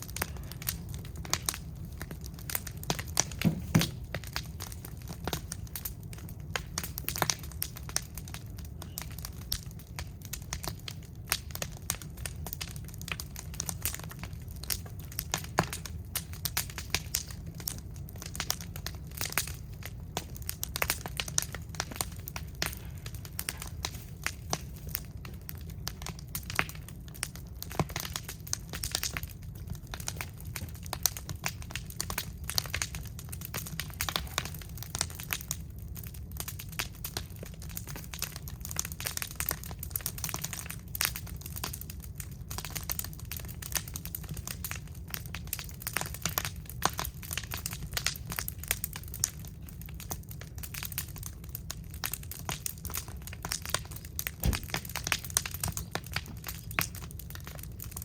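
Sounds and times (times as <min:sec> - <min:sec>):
fire crackling and popping: 0:00.0 - 0:58.0
low rumble: 0:54.4 - 0:55.1.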